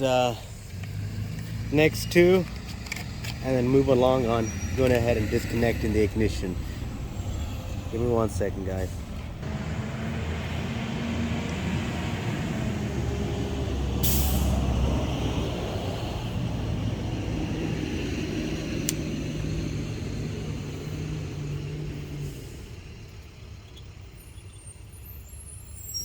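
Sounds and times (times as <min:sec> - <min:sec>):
heavy vehicle engine running: 0:00.0 - 0:24.1
air brake hiss: 0:14.0 - 0:14.6.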